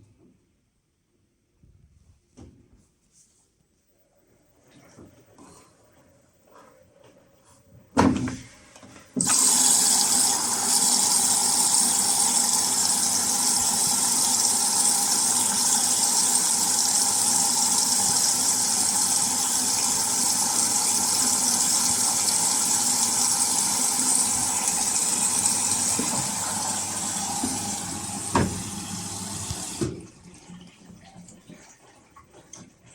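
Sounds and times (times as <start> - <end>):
water rushing into washing machine: 9.2 - 32.9.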